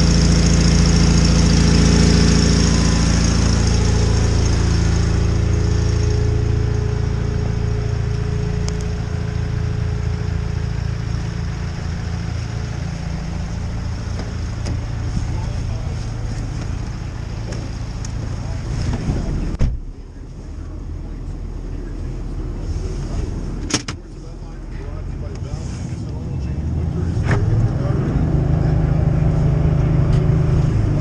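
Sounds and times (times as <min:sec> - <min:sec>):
garden tractor engine running: 0:00.0 - 0:19.6.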